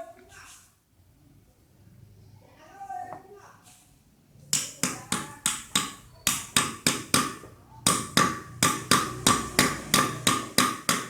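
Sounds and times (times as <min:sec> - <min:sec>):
hammer blows ringing on metal: 0:04.8 - 0:11.0.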